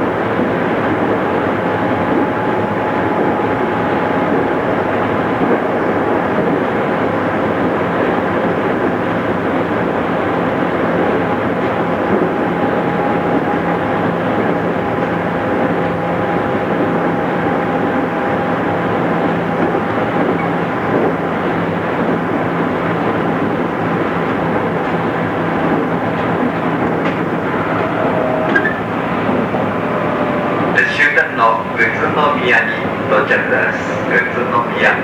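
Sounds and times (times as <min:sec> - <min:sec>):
faint even whine: 0:00.0 - 0:08.0, 0:27.3 - 0:32.9
train wheels rumbling: 0:00.0 - 0:35.0.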